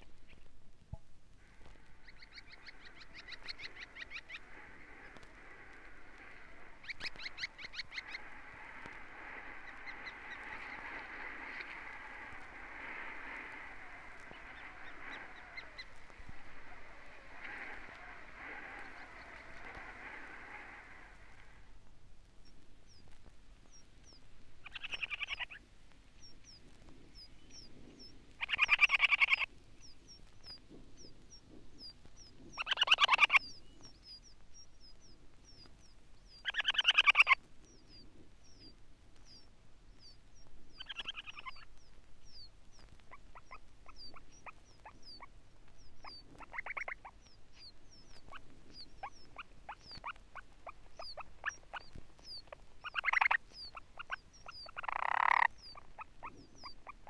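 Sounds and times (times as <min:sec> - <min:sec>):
buzzy rattling bird trills: 0:01.4 - 0:21.7, 0:43.1 - 0:57.0.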